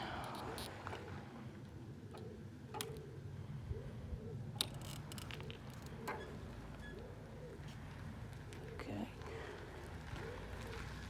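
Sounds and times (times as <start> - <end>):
bike clicking and rattling: 4.6 - 6.2.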